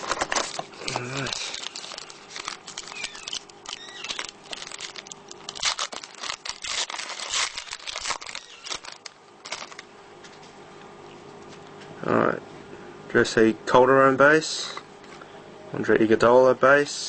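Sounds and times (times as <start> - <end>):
wrapper crinkling and tearing: 0.0 - 9.9.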